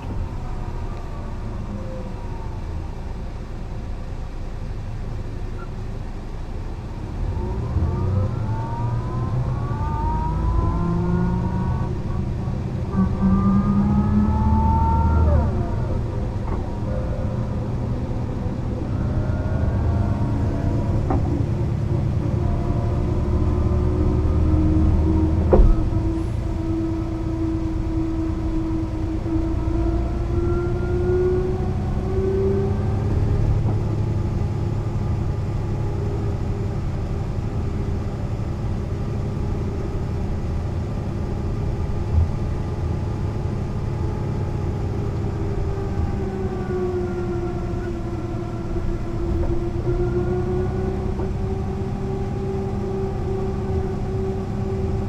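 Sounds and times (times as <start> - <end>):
bus diesel engine running: 0.0 - 55.0
thump: 25.5 - 26.4.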